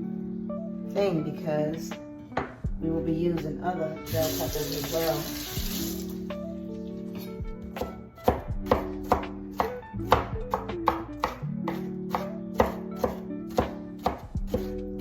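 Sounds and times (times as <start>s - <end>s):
background music: 0.0s - 15.0s
knife chopping on cutting board: 7.2s - 15.0s.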